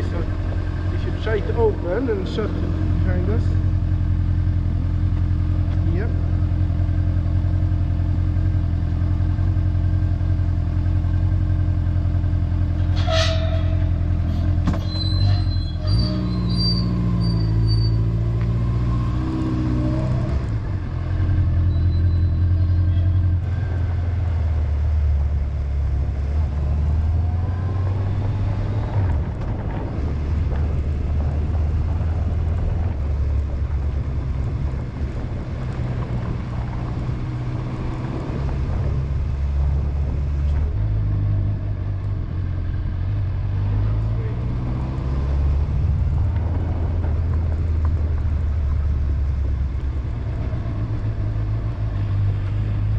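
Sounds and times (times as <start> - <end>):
wind noise: 26.5 - 42.3, 44.6 - 52.6.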